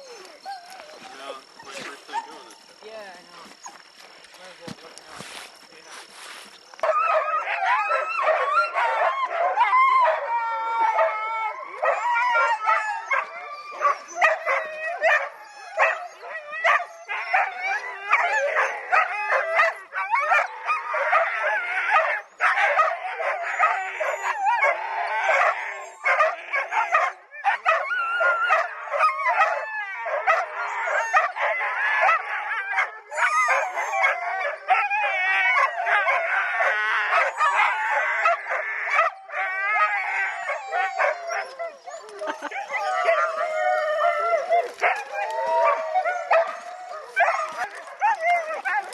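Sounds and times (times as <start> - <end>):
dogs barking and howling: 0.0 - 4.1, 6.6 - 48.9.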